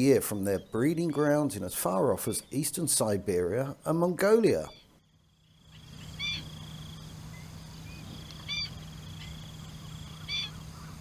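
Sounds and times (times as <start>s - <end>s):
steady high buzz: 5.0s - 11.0s
short bird calls: 5.7s - 6.7s, 7.4s - 11.0s.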